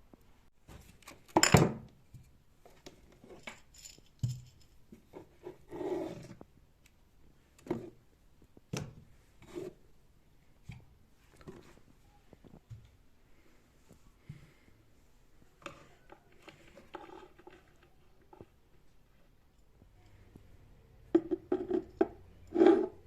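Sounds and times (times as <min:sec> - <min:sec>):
kitchen items knocking and clinking: 0:01.3 - 0:01.9, 0:21.1 - 0:23.0.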